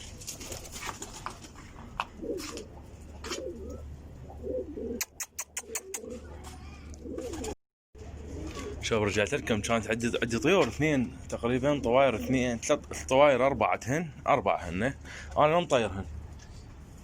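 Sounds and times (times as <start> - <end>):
pigeons cooing: 0.4 - 12.5.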